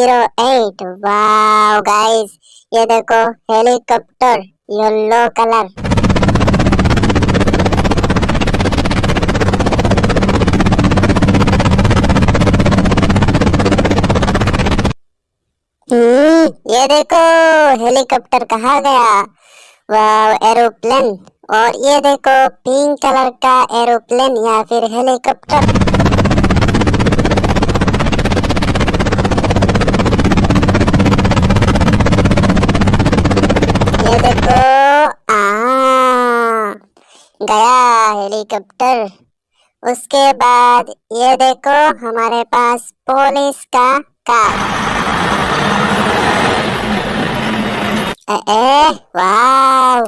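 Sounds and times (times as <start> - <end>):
helicopter rotor chopping: 5.8 - 15.0, 25.4 - 34.7, 44.3 - 48.2.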